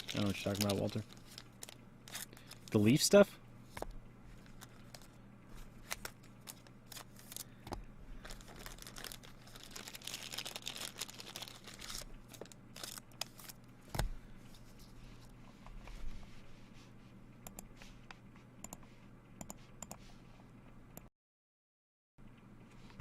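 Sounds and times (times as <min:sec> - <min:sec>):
card wrappers crinkling and tearing: 0:00.0 - 0:03.0, 0:04.4 - 0:13.7
cards ticking and tapping: 0:00.0 - 0:03.0.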